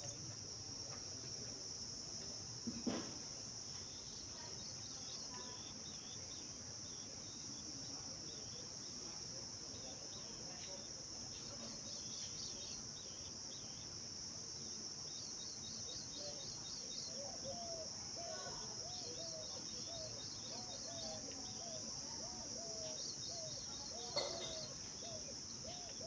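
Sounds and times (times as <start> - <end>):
insects droning: 0.0 - 26.0
brief thump: 2.6 - 3.2
faint bird chirps: 3.8 - 9.1, 15.1 - 26.0.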